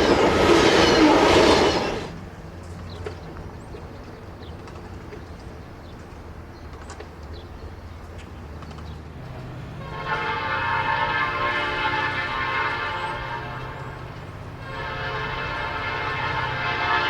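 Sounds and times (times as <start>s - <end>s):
diesel engine rumbling: 0.0s - 17.0s
locomotive air horn blasts: 9.7s - 17.0s.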